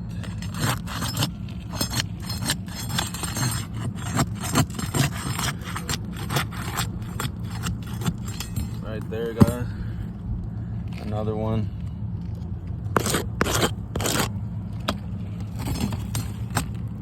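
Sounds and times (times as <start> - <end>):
steady low rumble: 0.0 - 17.0
tool scraping roof shingles: 0.2 - 9.8, 12.9 - 16.9.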